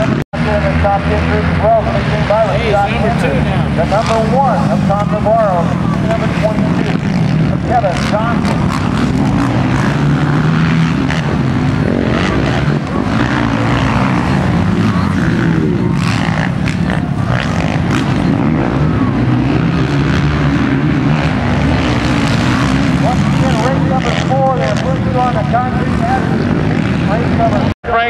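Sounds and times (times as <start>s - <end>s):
motocross bike engines revving: 0.0s - 28.0s.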